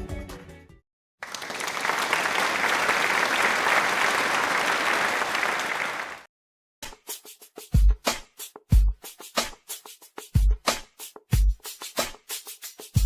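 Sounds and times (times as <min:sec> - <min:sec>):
applause: 0:01.2 - 0:06.3
drum beat: 0:07.0 - 0:13.0.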